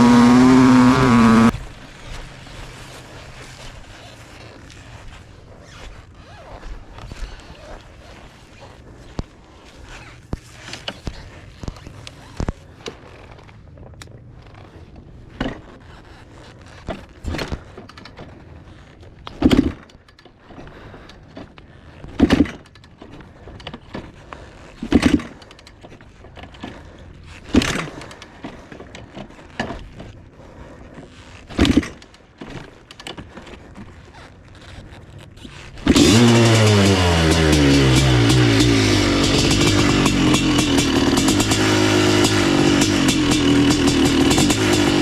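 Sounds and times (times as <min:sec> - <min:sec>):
dirt bike kickstart thumps: 0:00.0 - 0:01.7, 0:19.3 - 0:20.0, 0:22.1 - 0:22.8, 0:24.8 - 0:26.0, 0:27.5 - 0:30.1, 0:31.5 - 0:33.6, 0:35.7 - 0:45.0
dirt bike engine running: 0:00.0 - 0:03.6, 0:35.8 - 0:45.0.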